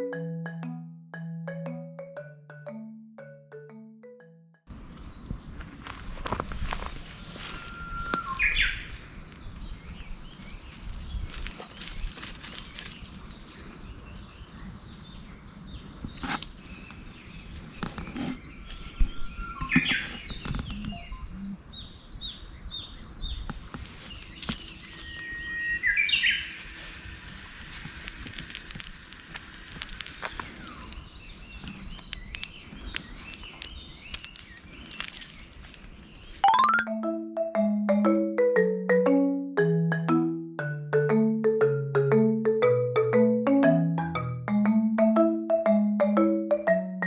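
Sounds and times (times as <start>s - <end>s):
songbirds chirping and singing: 8.0s - 27.7s, 29.6s - 36.8s.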